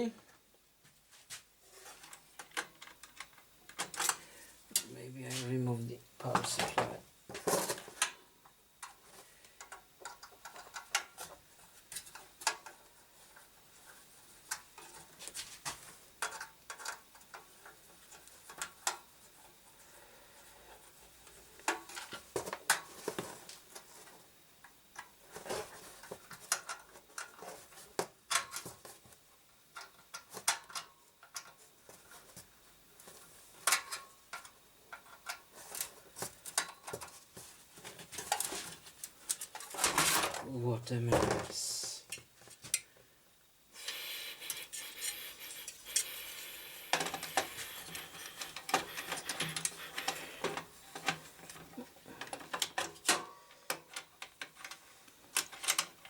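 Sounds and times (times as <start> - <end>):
metal and plastic parts clattering: 37.8 - 40.4, 46.9 - 53.2.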